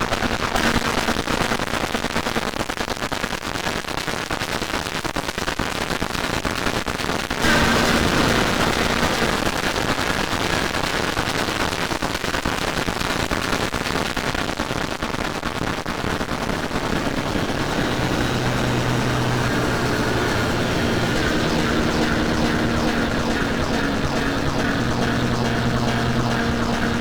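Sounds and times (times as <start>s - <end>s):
layered electronic sounds roaring: 7.4s - 9.5s, 16.7s - 27.0s
steady low tones: 7.4s - 9.6s, 16.7s - 27.0s.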